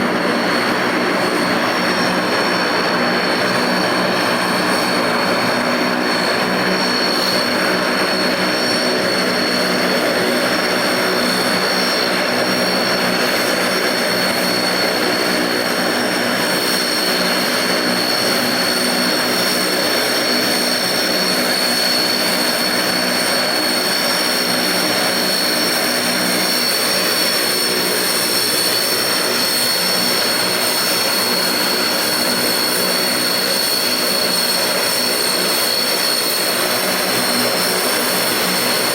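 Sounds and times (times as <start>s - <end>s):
high turbine whine: 0.0s - 38.9s
turboprop engines running: 0.0s - 38.9s.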